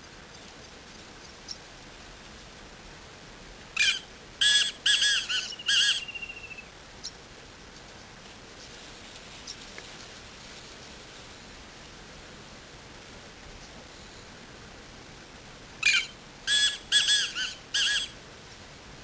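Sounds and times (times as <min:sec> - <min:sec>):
francolin harsh call: 0:03.8 - 0:06.7, 0:15.8 - 0:18.2.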